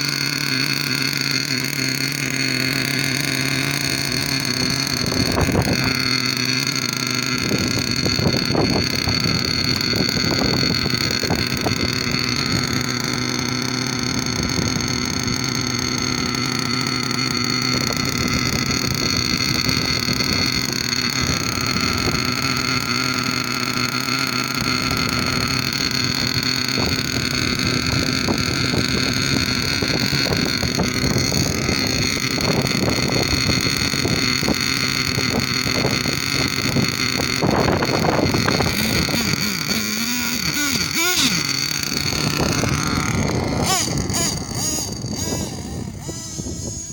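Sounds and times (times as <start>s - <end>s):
model car engine buzzing: 0.0s - 46.9s.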